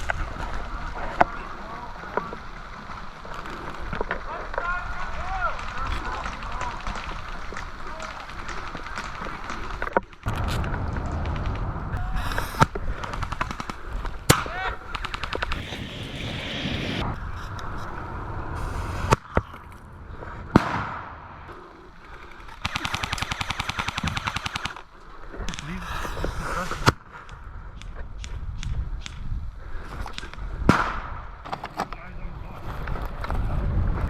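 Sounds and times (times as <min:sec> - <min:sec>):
airsoft guns firing bursts: 0:12.4 - 0:15.6, 0:22.2 - 0:24.9.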